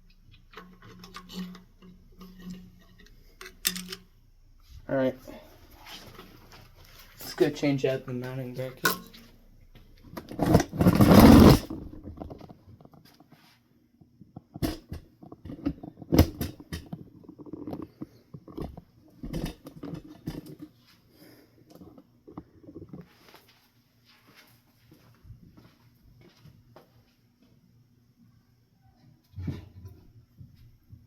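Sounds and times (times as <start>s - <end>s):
knocks and clicks of handling: 0.1s - 4.1s
loud rustling clatter: 10.2s - 12.6s.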